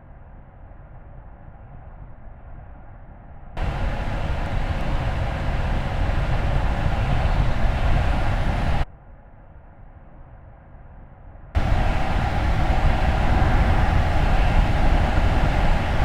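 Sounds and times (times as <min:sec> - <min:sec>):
car tyre and wind noise: 0:03.6 - 0:08.8, 0:11.6 - 0:16.0.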